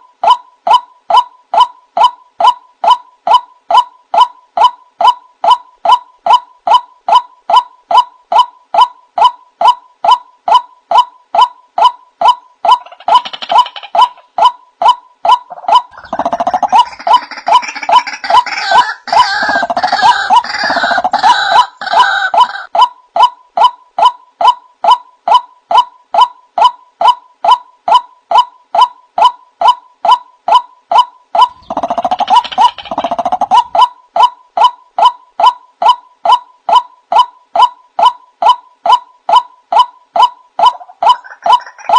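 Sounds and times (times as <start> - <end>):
bird croaking calls: 15.3 - 22.7, 31.4 - 34.0, 40.2 - 41.9
bird harsh repeated call: 15.3 - 22.7, 39.7 - 41.9.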